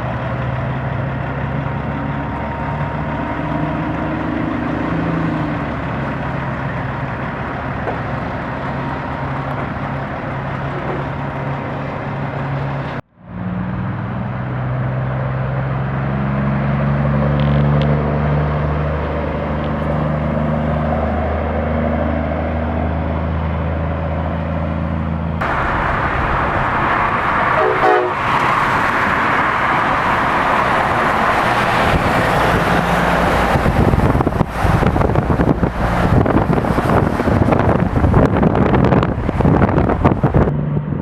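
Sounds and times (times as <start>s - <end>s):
truck low drone: 0.0s - 41.0s
loud even rushing noise: 25.4s - 41.0s
wind buffeting microphone: 25.4s - 41.0s.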